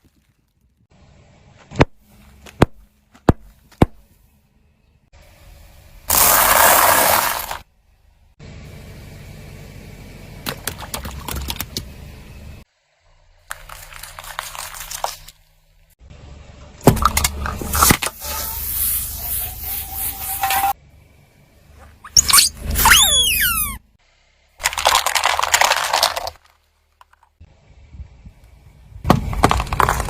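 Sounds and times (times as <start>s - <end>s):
tyre crushing brittle objects: 13.5s - 15.4s, 24.6s - 27.3s, 29.1s - 30.0s.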